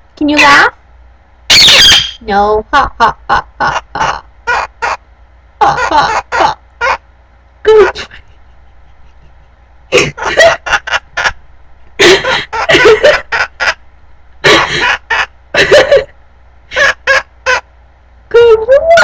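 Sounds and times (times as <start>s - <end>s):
parrot mimicking laughter: 1.5s - 2.2s, 3.0s - 5.0s, 5.6s - 7.0s, 9.0s - 11.4s, 12.0s - 13.8s, 14.4s - 16.1s, 16.7s - 17.7s.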